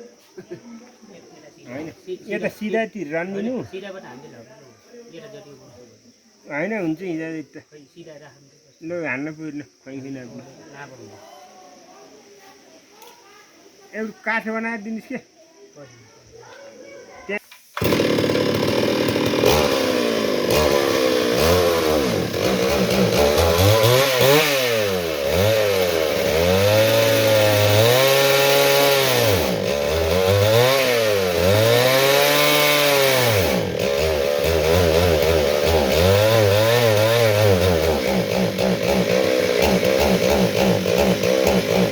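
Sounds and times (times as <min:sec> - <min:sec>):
chainsaw engine revving: 0:17.8 - 0:41.9.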